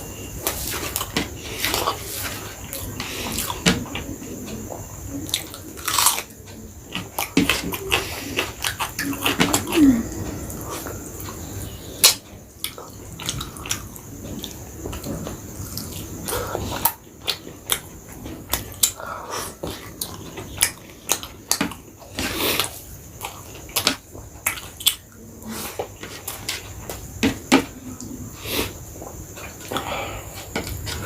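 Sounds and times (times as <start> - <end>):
chewing and wet mouth sounds: 12.6 - 27.0.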